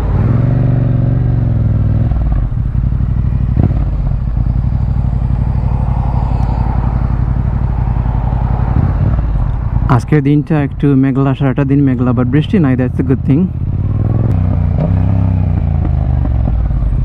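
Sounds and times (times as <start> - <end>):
motorcycle engine idling: 0.8 - 10.0.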